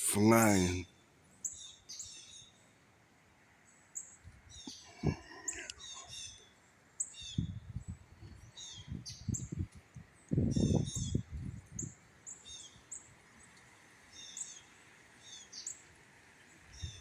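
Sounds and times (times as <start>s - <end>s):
songbird chirping: 3.6s - 17.0s
wind buffeting microphone: 5.0s - 5.2s, 7.3s - 12.0s.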